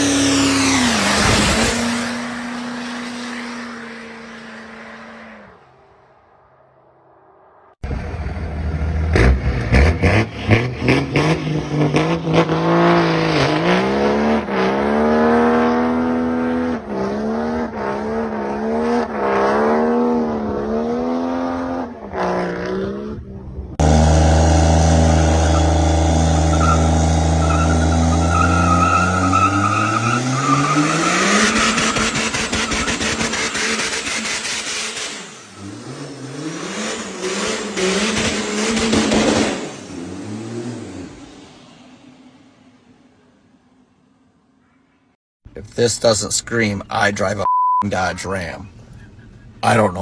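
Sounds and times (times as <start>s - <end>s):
diesel pickup truck accelerating: 7.8s - 41.7s
diesel engine revving: 7.9s - 41.9s.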